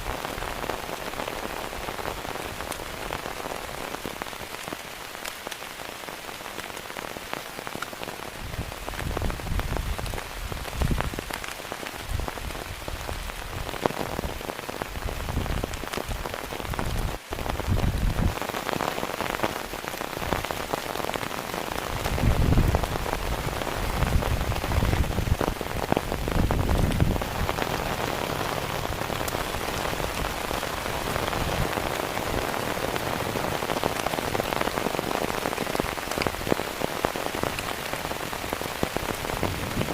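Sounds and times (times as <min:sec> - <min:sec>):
heavy rain pouring: 0:00.0 - 0:39.9
raindrops ticking: 0:00.0 - 0:39.9
wind buffeting microphone: 0:08.4 - 0:11.4, 0:16.7 - 0:18.4, 0:21.9 - 0:33.6, 0:39.1 - 0:39.9.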